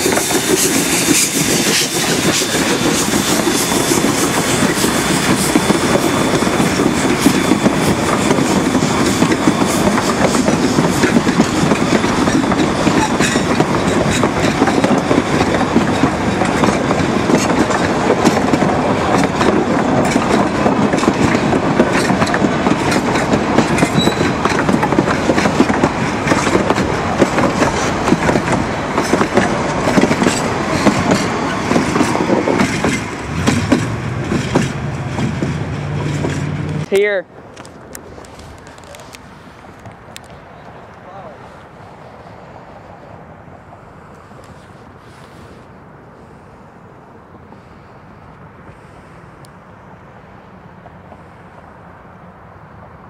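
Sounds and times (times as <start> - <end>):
train wheels clattering over joints: 0.0 - 39.1.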